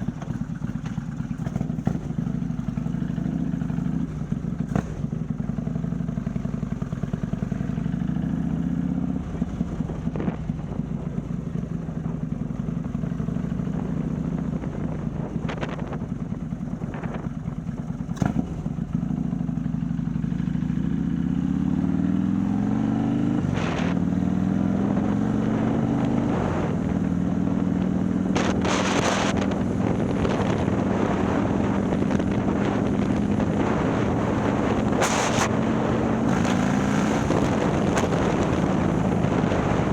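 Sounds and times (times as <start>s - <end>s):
motorcycle engine revving: 0.0s - 39.9s
wind noise: 9.2s - 11.4s, 13.7s - 17.6s, 22.2s - 39.9s.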